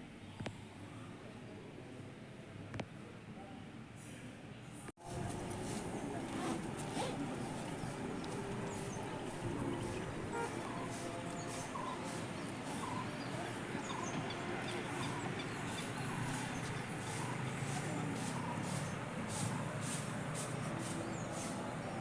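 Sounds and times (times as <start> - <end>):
outdoor background din: 0.0 - 22.0
bird chirps: 7.7 - 19.0.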